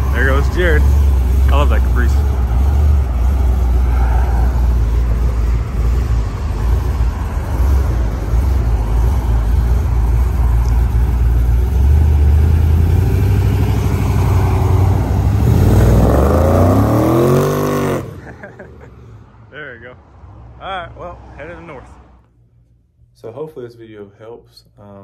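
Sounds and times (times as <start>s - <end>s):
car engine low exhaust rumble: 0.0s - 19.2s.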